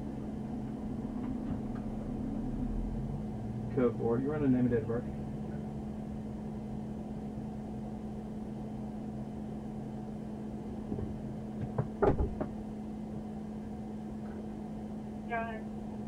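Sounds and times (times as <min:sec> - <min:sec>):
car engine idling hum: 0:00.0 - 0:16.0.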